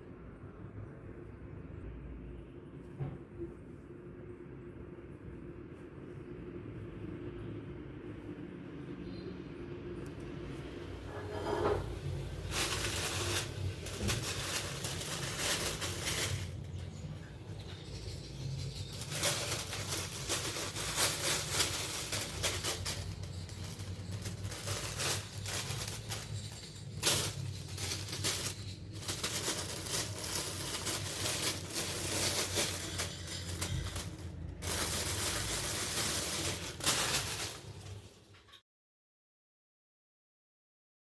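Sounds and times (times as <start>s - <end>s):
packaging rustling: 11.0s - 17.0s, 17.7s - 38.2s.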